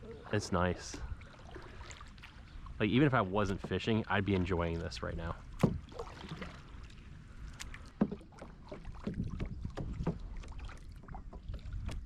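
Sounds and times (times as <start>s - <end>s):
paddle strokes splashing: 0.0s - 12.0s
water lapping against hull: 0.0s - 12.0s
sharp splash or knock: 5.6s - 6.6s.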